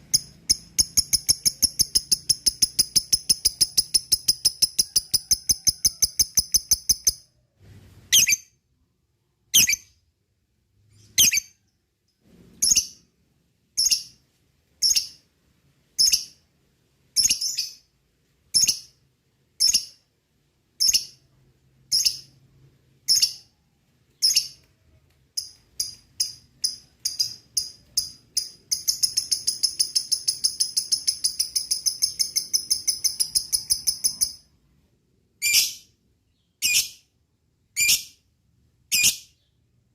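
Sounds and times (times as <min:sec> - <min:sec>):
lovebird chirping and trilling: 0:00.0 - 0:07.3, 0:08.1 - 0:08.6, 0:09.5 - 0:10.0, 0:10.9 - 0:11.6, 0:12.6 - 0:13.1, 0:13.8 - 0:14.2, 0:14.8 - 0:15.2, 0:16.0 - 0:16.4, 0:17.2 - 0:17.9, 0:18.5 - 0:19.0, 0:19.6 - 0:20.0, 0:20.8 - 0:21.2, 0:21.9 - 0:22.4, 0:23.0 - 0:23.5, 0:24.2 - 0:24.7, 0:25.4 - 0:34.5, 0:35.4 - 0:37.1, 0:37.8 - 0:38.2, 0:38.9 - 0:39.6.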